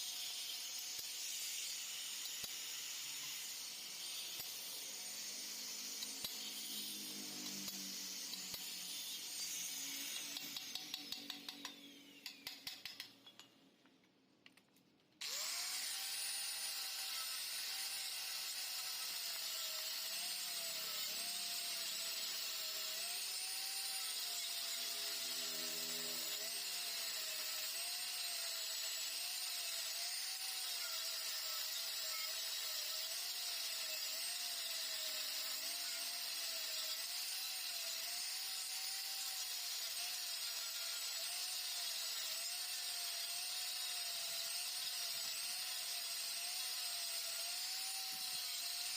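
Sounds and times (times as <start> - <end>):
power tool whining on metal: 0.0 - 13.5, 15.2 - 48.9.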